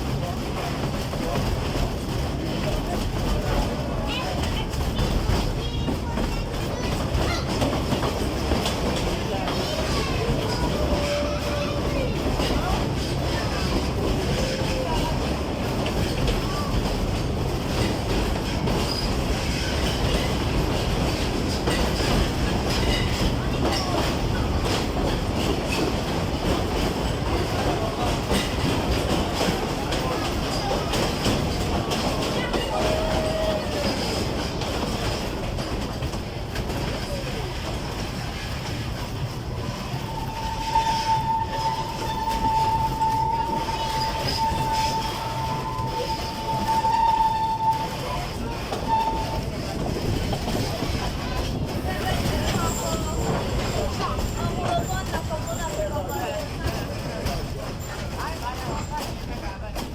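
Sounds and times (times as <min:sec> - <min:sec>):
train rumbling along track: 0:00.0 - 0:59.9
wheels clattering on rails: 0:00.0 - 0:59.9
faint high wheel squeals: 0:39.7 - 0:49.5.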